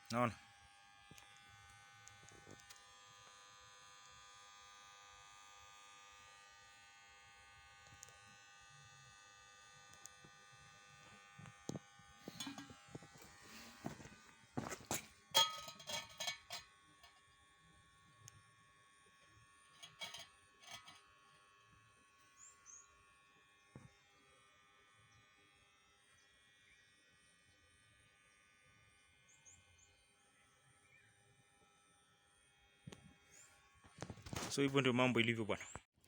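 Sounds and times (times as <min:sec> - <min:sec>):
faint electrical buzz: 0:00.0 - 0:29.2
metal knocks and clanks: 0:12.3 - 0:12.8, 0:14.8 - 0:16.6.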